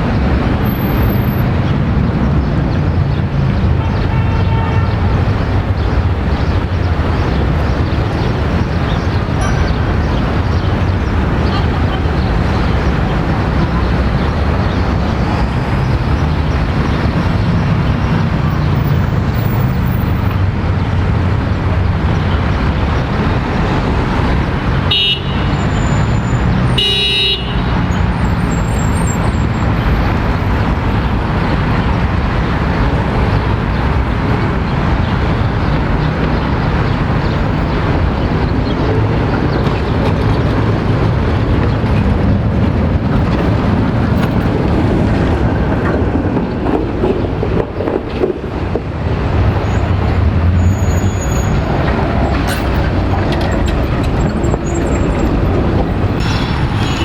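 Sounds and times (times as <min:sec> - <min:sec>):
street traffic: 0:00.0 - 0:57.0
car horn toots: 0:03.8 - 0:05.2, 0:24.9 - 0:27.9.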